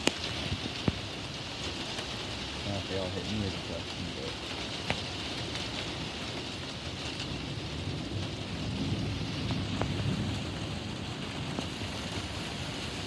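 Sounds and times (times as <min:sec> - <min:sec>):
steady rain falling: 0:00.0 - 0:13.0
low rumble of thunder: 0:06.8 - 0:13.0.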